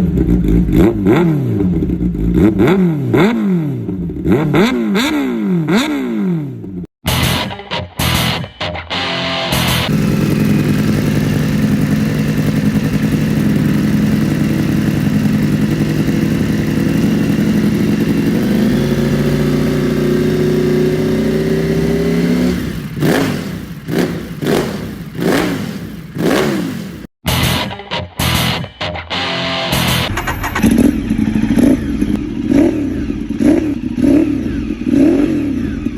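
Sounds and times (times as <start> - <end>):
motorcycle engine running: 0.0 - 7.4, 8.9 - 35.9
motorcycle throttle blips: 9.5 - 27.6, 29.7 - 35.9.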